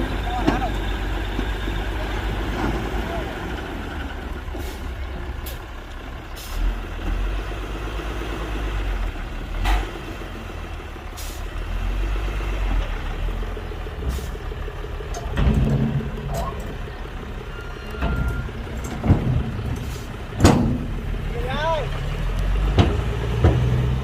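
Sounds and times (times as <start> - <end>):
diesel machinery engine rumble: 0.0 - 24.0.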